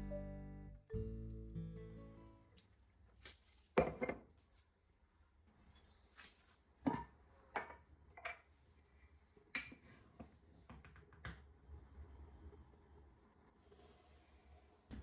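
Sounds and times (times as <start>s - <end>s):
dishes and cutlery clinking: 9.6s - 10.1s.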